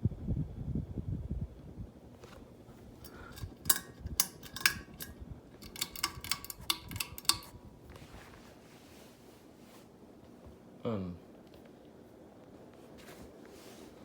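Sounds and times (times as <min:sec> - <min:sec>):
ceiling fan running: 0:00.0 - 0:14.0
pull chain clicking: 0:03.0 - 0:07.6.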